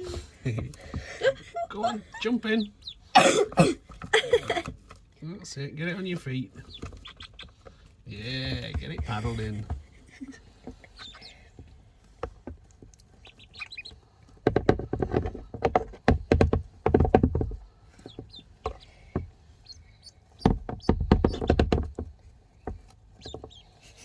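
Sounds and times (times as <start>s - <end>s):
duckling peeps: 2.1s - 3.1s, 6.6s - 7.7s, 10.6s - 11.5s, 13.0s - 14.3s, 18.0s - 21.7s, 23.1s - 24.0s.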